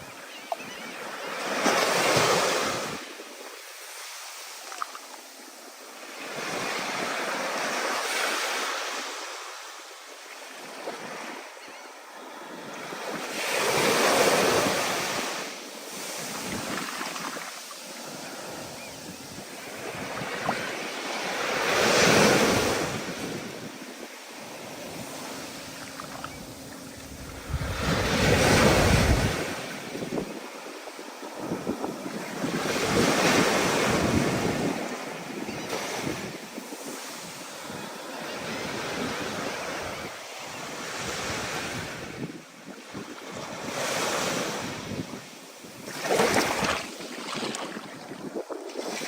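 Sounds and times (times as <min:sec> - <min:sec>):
wind: 0:00.0 - 0:49.0
ocean surf breaking: 0:13.4 - 0:30.4.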